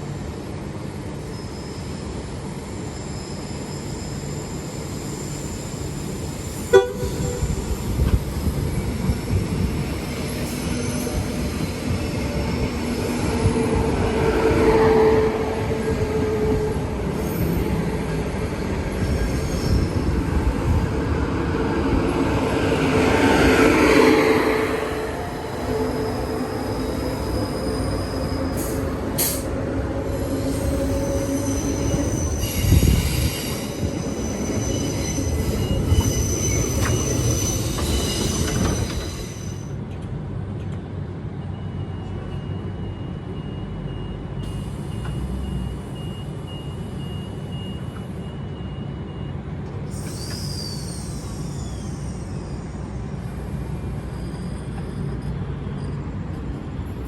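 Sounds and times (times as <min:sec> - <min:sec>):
train wheels squealing on rails: 0:00.1 - 0:57.0
train rumble: 0:04.0 - 0:48.3.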